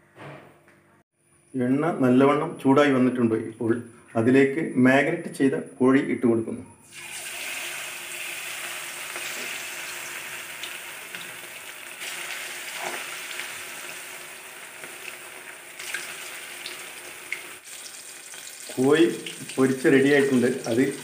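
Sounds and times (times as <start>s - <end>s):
chicken deep-frying in oil: 6.8s - 21.0s.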